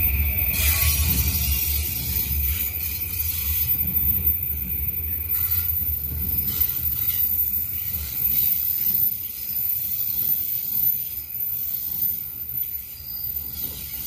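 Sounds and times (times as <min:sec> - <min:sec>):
low rumble: 0:00.0 - 0:08.4
train wheels hissing on rails: 0:00.0 - 0:14.0.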